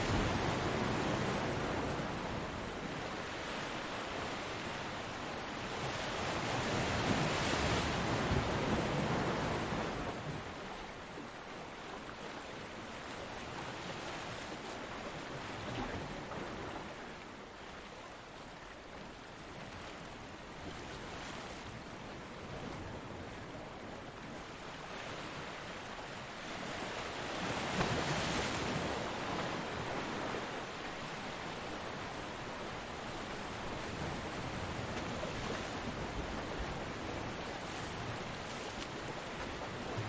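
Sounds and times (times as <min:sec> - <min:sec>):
ocean waves breaking: 0:00.0 - 0:11.3, 0:19.6 - 0:40.0.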